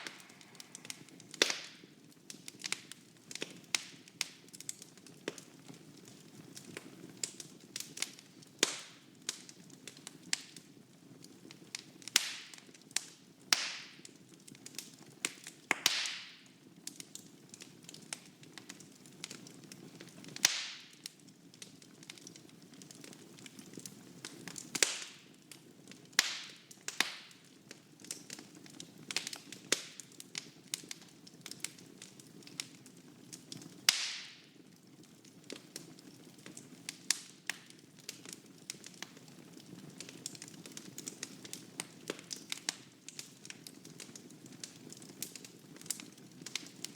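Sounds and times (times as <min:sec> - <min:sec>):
low rumble of flames: 0:00.0 - 0:08.6
fire crackling and popping: 0:00.0 - 0:46.9.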